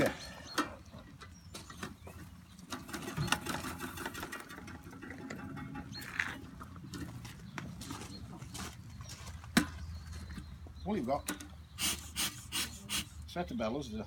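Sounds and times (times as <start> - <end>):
clicks and clatter of smoker handled: 0.5 - 7.2, 9.5 - 11.6.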